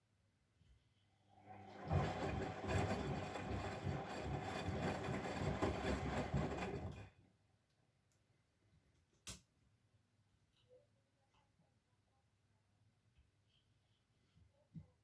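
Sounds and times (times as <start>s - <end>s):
washing machine rattling pulse: 1.6s - 7.1s.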